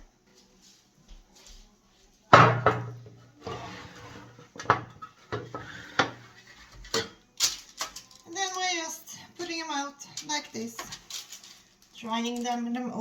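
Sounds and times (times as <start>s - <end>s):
kitchenware knocking and clattering: 2.3s - 7.2s.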